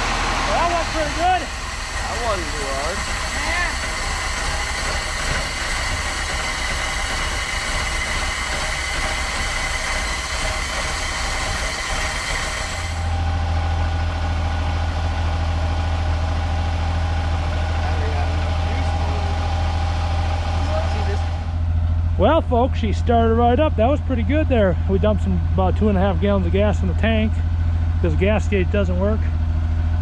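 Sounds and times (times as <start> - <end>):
strong low hum: 0.0 - 30.0
truck engine running: 0.0 - 30.0.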